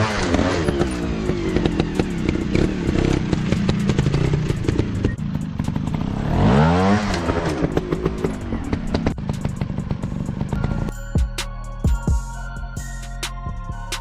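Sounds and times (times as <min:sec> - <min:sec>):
dirt bike engine revving: 0:00.0 - 0:10.9.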